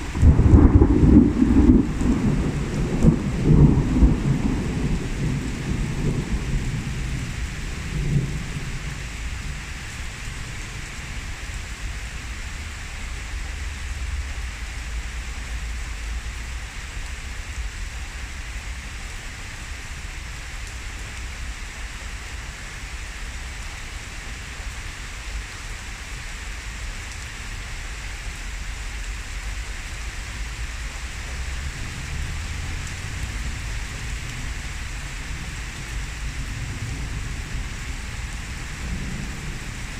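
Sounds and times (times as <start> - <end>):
thunder rumble and crack: 0.0 - 11.5, 30.3 - 39.9
heavy rain pouring: 0.0 - 39.9.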